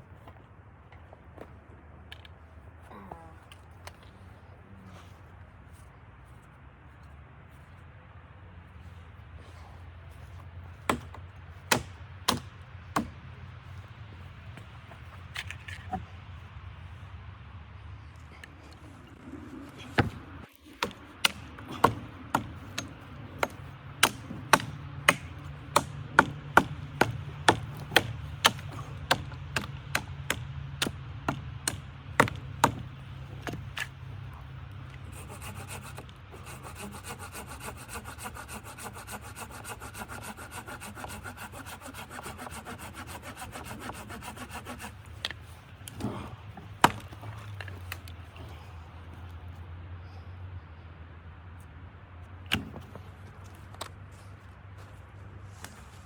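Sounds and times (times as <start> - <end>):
hand saw cutting wood: 19.1 - 33.9, 34.9 - 47.9.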